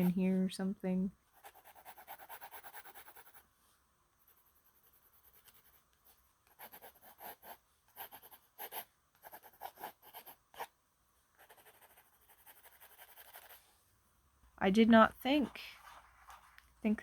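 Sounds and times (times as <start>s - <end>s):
pencil scratching on paper: 0.0s - 0.3s, 1.3s - 3.4s, 4.2s - 10.7s, 11.4s - 13.7s.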